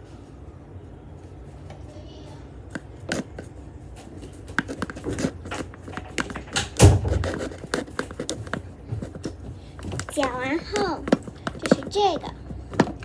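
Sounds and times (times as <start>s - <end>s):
spoon stirring slime: 7.2s - 13.0s.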